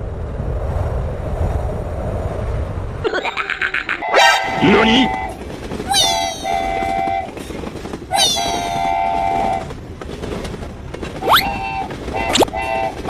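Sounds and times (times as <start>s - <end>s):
long horn blasts: 4.0s - 5.4s
rising whistle-like glide: 5.9s - 6.8s.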